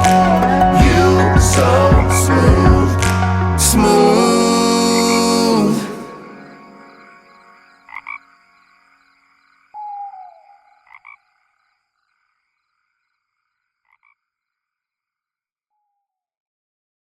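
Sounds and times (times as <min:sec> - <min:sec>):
song ending: 0:00.0 - 0:07.2
frog croaking: 0:00.0 - 0:14.9.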